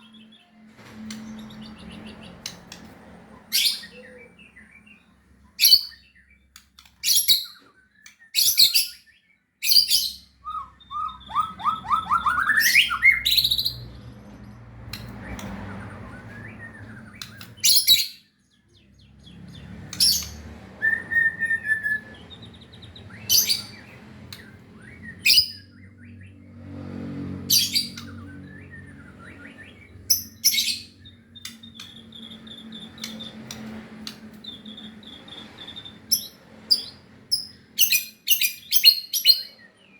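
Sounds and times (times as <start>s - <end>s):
clear bird whistle: 7.0s - 13.8s
rising run of bird notes: 10.4s - 13.8s.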